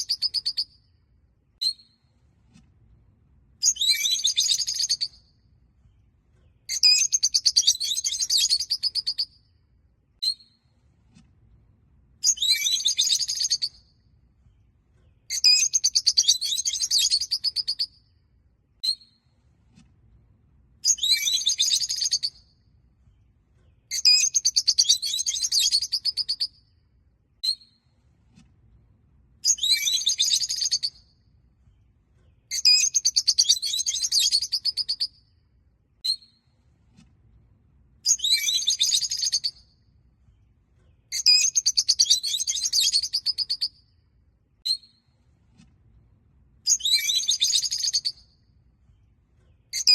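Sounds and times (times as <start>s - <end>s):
sharp bird chirp: 3.6s - 5.2s, 12.2s - 13.8s, 15.3s - 17.9s, 38.1s - 39.6s, 41.1s - 43.8s, 46.7s - 48.3s.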